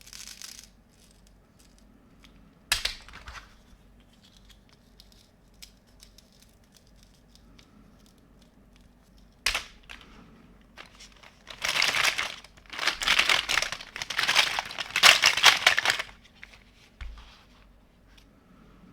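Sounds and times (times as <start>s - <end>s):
packaging crinkling: 9.5s - 10.1s, 10.8s - 17.2s.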